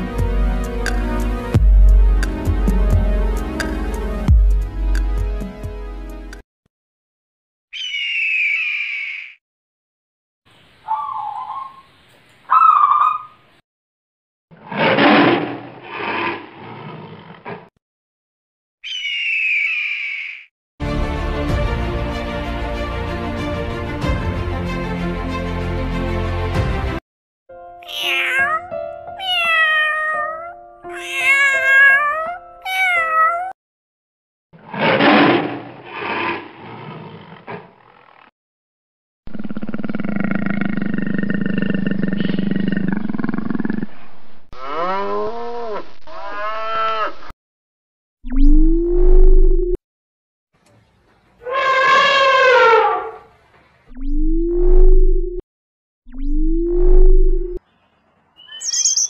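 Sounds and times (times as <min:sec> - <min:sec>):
whistled bird calls: 0:10.8 - 0:13.4, 0:57.8 - 0:59.0
kitten meowing: 0:18.8 - 0:19.6, 0:27.8 - 0:33.6
lion roaring: 0:39.3 - 0:44.0
big cat growling: 0:39.3 - 0:47.0.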